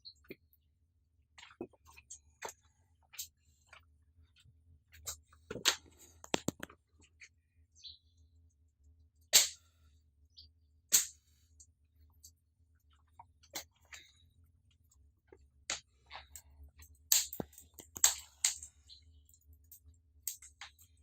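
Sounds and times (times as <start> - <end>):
wood fire crackling and popping: 17.1 - 18.7.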